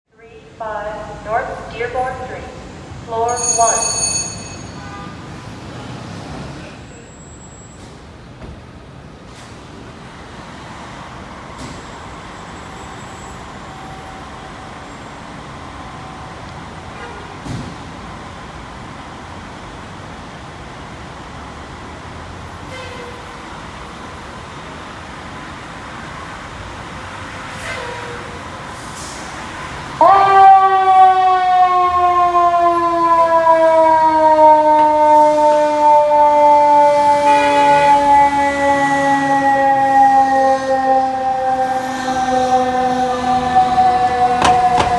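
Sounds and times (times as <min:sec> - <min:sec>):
street traffic rumble: 0:00.1 - 0:44.9
fire engine siren wailing: 0:00.2 - 0:05.1, 0:27.2 - 0:44.9.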